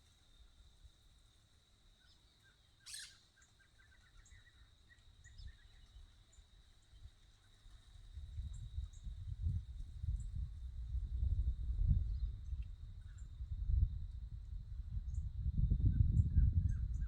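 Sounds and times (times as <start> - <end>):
faint bird chirps: 2.0 - 7.7.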